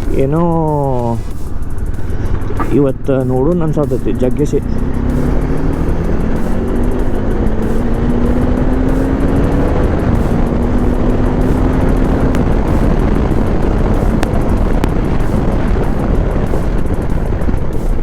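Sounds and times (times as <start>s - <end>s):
motorcycle engine running: 0.0s - 18.0s
road rush: 0.0s - 18.0s
sharp ticks: 0.0s - 18.0s
wind noise on microphone: 0.0s - 18.0s.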